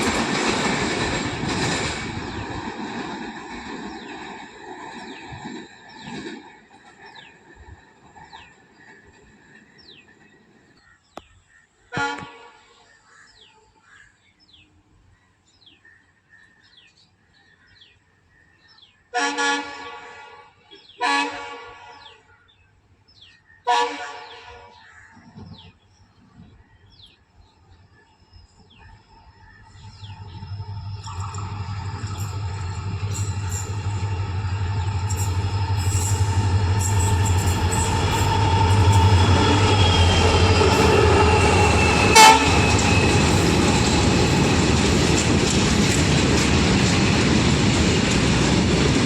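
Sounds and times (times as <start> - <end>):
low train rumble: 0.0 - 11.0, 27.2 - 49.0
train horn blasts: 11.9 - 12.8, 19.1 - 22.2, 23.7 - 24.7, 31.0 - 44.2.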